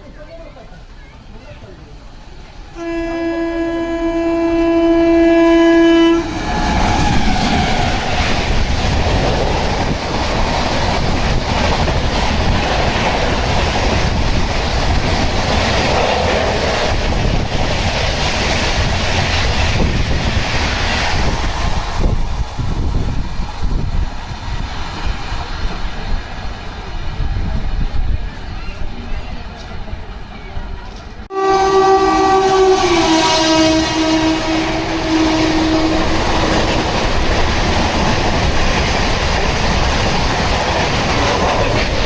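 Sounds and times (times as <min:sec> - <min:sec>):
train rumble and wheel clatter: 0:00.0 - 0:42.0
train horn: 0:02.8 - 0:07.5, 0:31.3 - 0:37.0.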